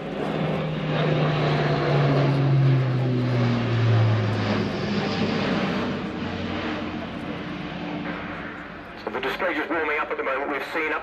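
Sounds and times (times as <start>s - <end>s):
propeller aircraft flying by: 0.0s - 11.0s.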